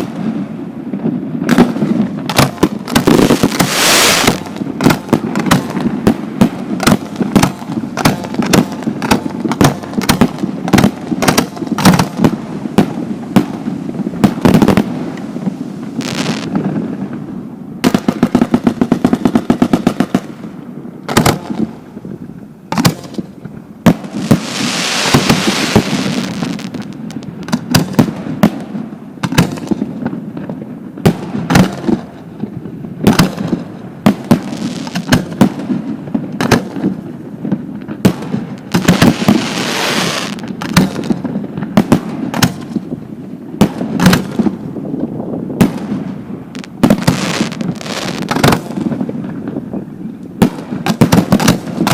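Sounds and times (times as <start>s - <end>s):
firework bangs: 0.0s - 51.9s
firework crackling hiss: 2.8s - 5.2s, 10.5s - 17.3s, 23.9s - 28.2s, 34.4s - 35.4s, 36.6s - 43.0s, 43.8s - 49.2s.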